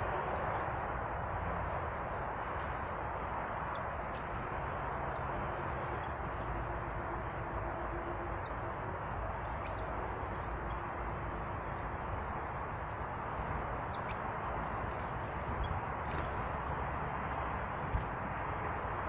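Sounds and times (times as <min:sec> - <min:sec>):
steady rushing outdoor noise: 0:00.0 - 0:19.0
small birds chirping: 0:02.4 - 0:16.9.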